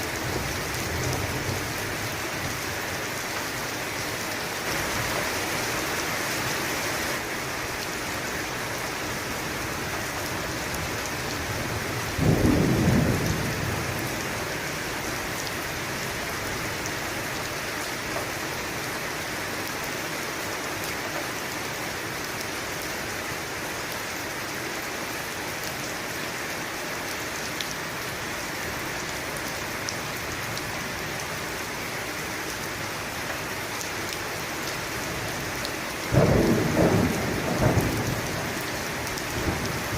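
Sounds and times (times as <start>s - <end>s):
steady rain falling: 0.0s - 39.9s
thunder clap and rumble: 12.0s - 14.2s, 36.2s - 39.9s.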